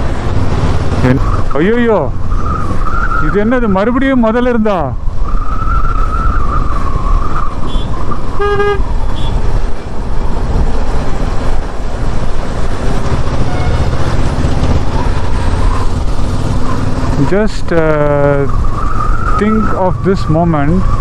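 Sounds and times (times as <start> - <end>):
road traffic rumbling: 0.0 - 21.0
vehicle horn honking: 7.6 - 9.4, 13.4 - 13.9.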